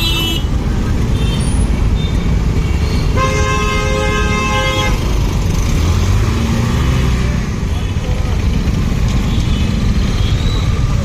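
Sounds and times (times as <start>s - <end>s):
road traffic noise: 0.0s - 11.0s
vehicle horn blast: 3.2s - 5.0s.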